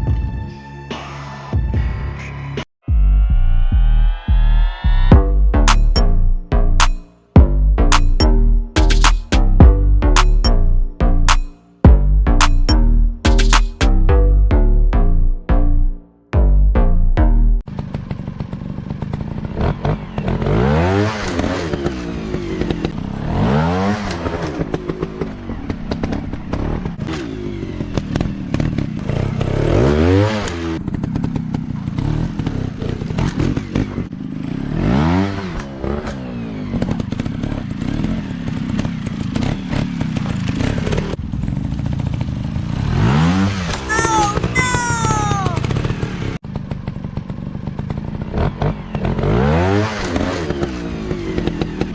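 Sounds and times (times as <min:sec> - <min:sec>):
dirt bike engines revving: 0:43.0 - 0:46.1.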